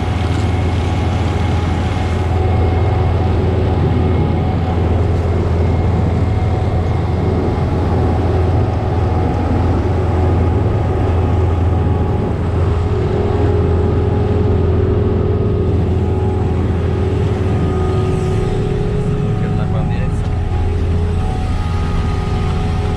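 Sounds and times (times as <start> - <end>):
diesel engine drone: 0.0 - 22.9
steady machine hum: 0.0 - 22.9.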